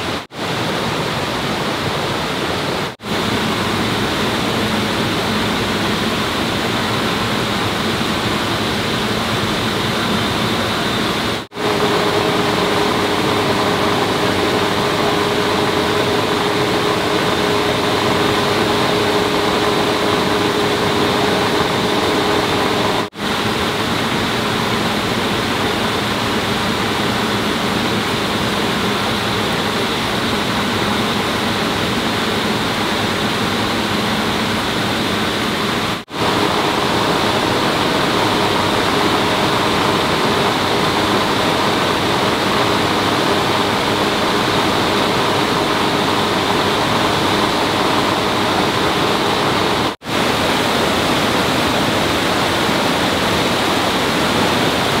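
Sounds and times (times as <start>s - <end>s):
rushing water: 0.0s - 55.0s
steady hum: 0.0s - 55.0s.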